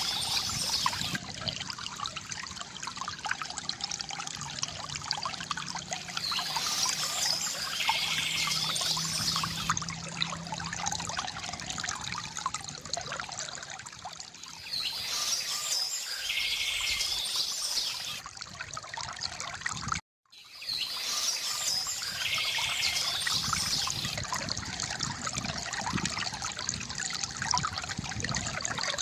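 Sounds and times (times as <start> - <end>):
birds singing with trills: 0.0 - 1.2, 6.0 - 9.8, 14.5 - 18.2, 20.4 - 24.2
water dripping: 0.0 - 14.6
water trickling into a basin: 0.0 - 29.0.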